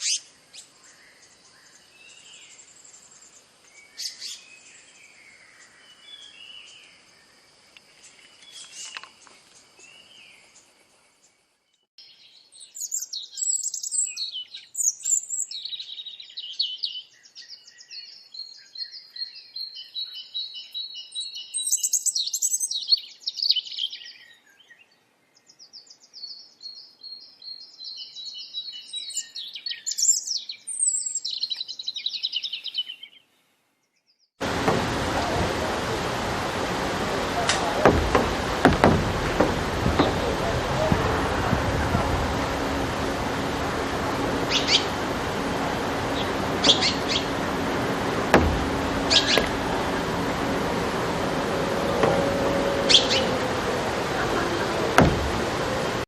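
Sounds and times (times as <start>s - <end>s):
songbirds singing and chirping: 0.0s - 56.0s
steady high whine: 34.4s - 56.0s.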